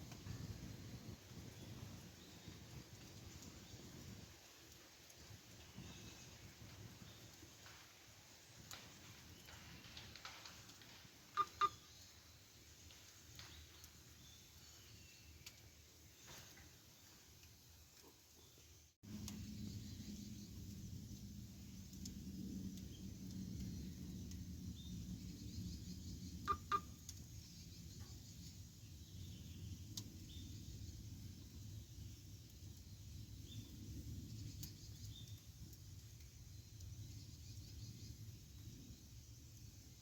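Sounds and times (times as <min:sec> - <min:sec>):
fire sharp pops: 0:00.0 - 0:14.5
campfire rumble and crackles: 0:00.0 - 0:40.0
faint bird chirps: 0:11.4 - 0:12.3.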